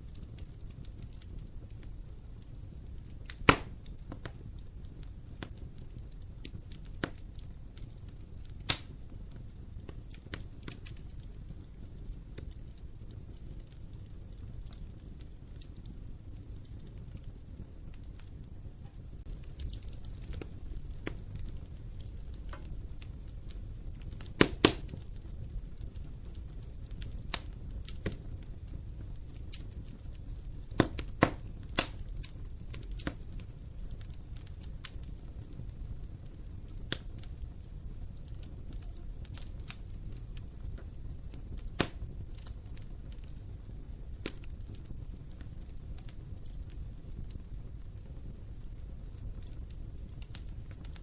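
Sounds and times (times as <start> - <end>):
fire crackling and popping: 0.0 - 51.0
fire rumbling: 0.0 - 51.0.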